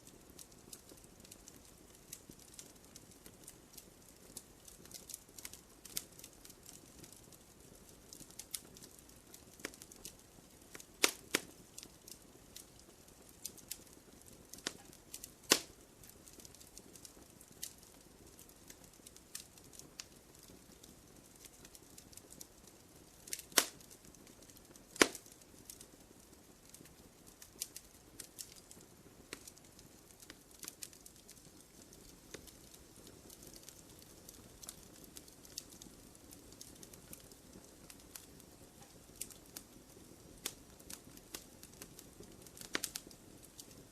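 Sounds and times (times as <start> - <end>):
wood fire crackling: 0.0 - 43.9
loud fire pops: 8.1 - 12.8, 13.4 - 25.9, 26.6 - 43.8.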